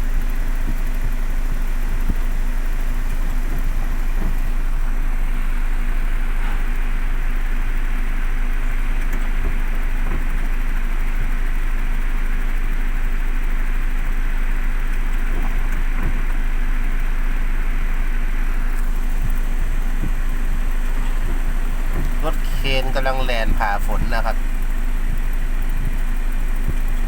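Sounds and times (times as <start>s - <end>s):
vehicle engine humming: 0.0s - 9.4s, 17.0s - 27.0s
heavy rain falling: 18.8s - 25.2s.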